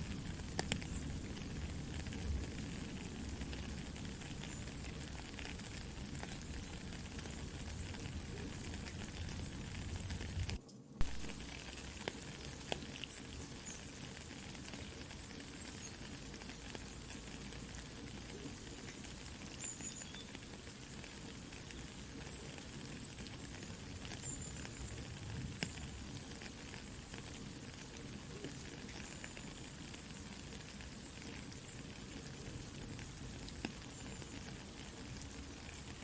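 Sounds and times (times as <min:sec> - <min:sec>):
campfire crackling and popping: 0:00.0 - 0:36.0
soft steady rain: 0:00.0 - 0:36.0.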